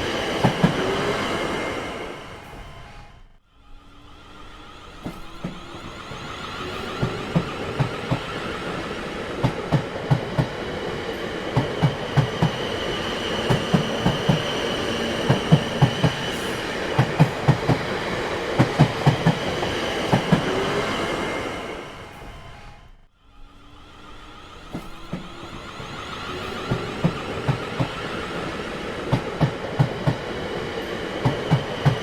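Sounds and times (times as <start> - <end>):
train rumble: 0.0 - 32.0
train wheels clacking over rail joints: 11.4 - 20.8, 24.7 - 32.0.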